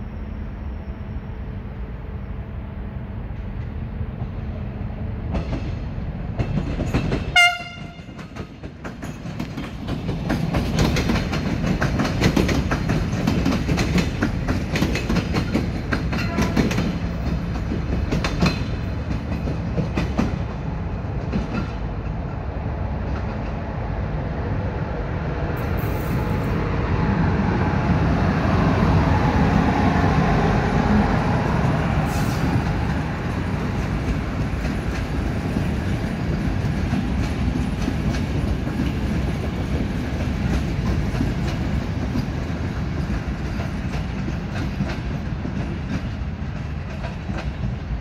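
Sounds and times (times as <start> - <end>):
train rumbling past: 0.0 - 48.0
wheels clicking over rail joints: 5.2 - 23.7, 32.5 - 48.0
train horn blast: 7.3 - 8.2, 16.2 - 17.0.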